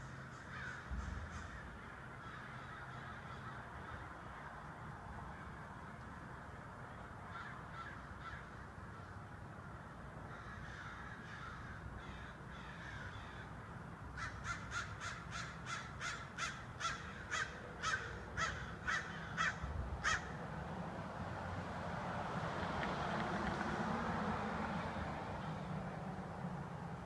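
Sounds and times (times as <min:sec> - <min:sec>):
birds calling: 0:00.0 - 0:04.0, 0:14.1 - 0:20.4.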